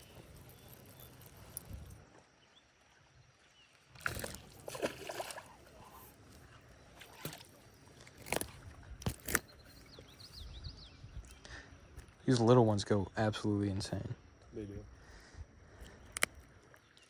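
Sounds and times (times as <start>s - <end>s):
fish splashing at water surface: 4.0s - 5.9s.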